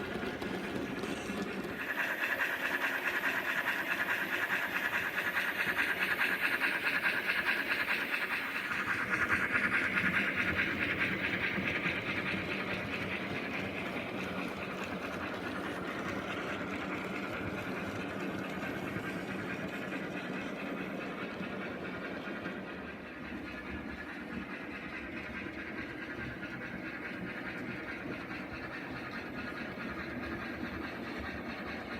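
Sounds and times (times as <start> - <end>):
model locomotive running on track: 0.0 - 31.9.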